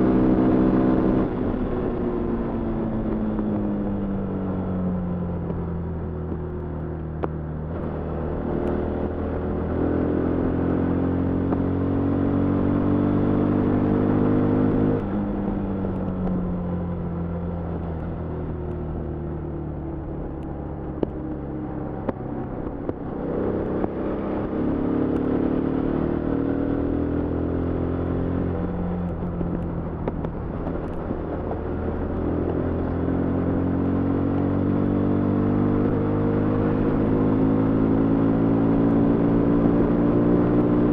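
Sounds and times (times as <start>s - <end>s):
motorcycle engine revving: 21.7s - 40.9s.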